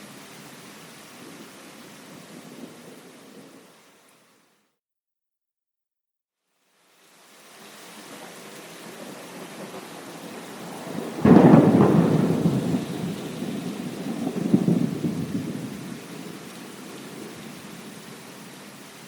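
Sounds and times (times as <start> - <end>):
heavy rain: 0.0 - 4.6, 6.7 - 19.0
thunder crack and rumble: 8.8 - 17.9.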